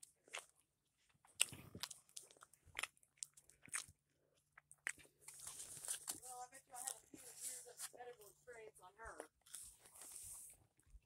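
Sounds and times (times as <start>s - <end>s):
person chewing: 0.0s - 7.9s, 9.2s - 11.0s
crisp crunching bites: 4.6s - 6.2s.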